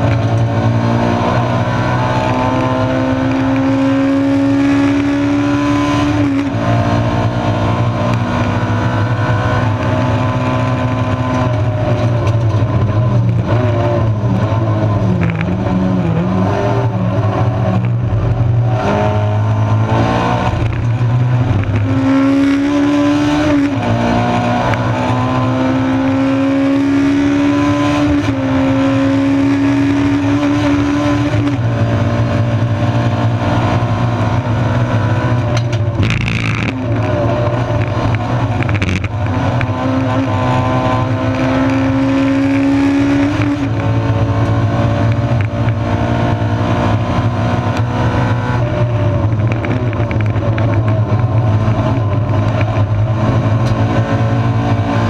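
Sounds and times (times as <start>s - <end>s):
race car engine pulling hard: 0.0s - 55.0s.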